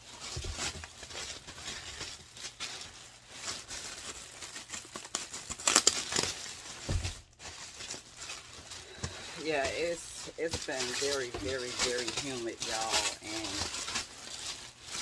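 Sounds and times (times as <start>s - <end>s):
packaging rustling and crackling: 0.0s - 15.0s
low thump: 6.9s - 7.2s.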